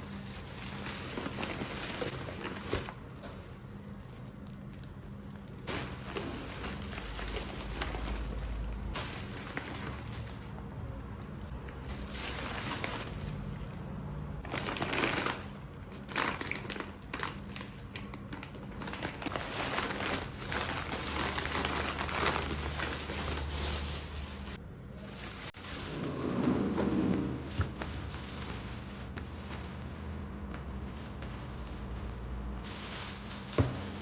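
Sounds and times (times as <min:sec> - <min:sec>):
packaging crinkling and rustling: 0:00.0 - 0:25.6
small clicks and crackles: 0:00.1 - 0:13.8.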